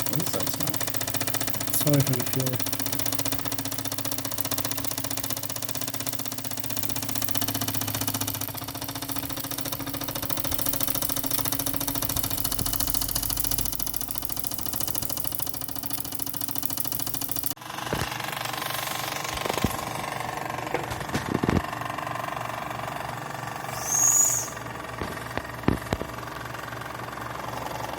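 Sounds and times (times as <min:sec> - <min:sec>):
toy steam engine running: 0:00.0 - 0:20.5.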